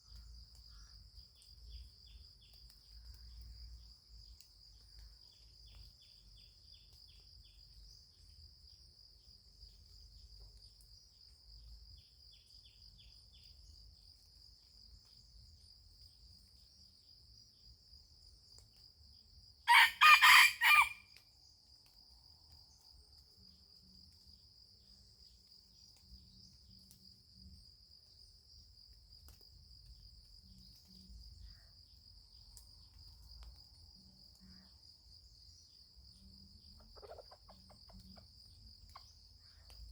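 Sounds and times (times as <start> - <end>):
insect drone: 0.0 - 39.9
rooster crowing: 19.7 - 21.1.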